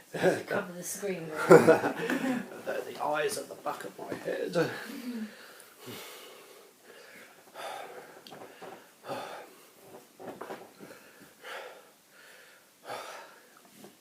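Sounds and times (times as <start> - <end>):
person breathing in bursts: 4.7 - 10.0, 10.8 - 13.6.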